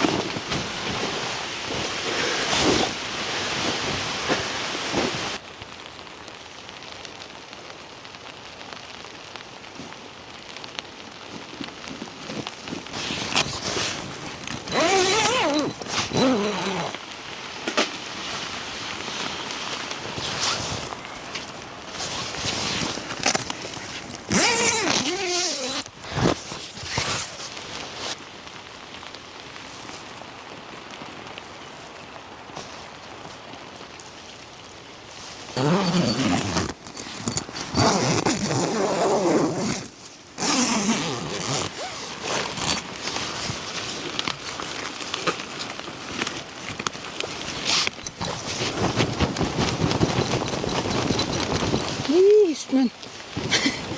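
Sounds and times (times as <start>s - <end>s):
steady rain falling: 0.0s - 53.9s
zipper rasping: 12.9s - 17.0s, 22.4s - 27.3s, 35.6s - 42.9s, 47.6s - 52.1s.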